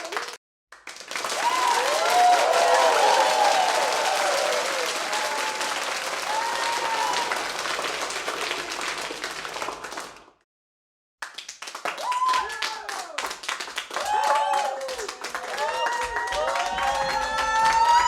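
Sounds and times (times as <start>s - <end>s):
crowd applauding: 0.0s - 10.4s, 11.2s - 18.0s
cheers and whoops: 1.3s - 7.8s, 11.9s - 13.3s, 14.0s - 18.0s.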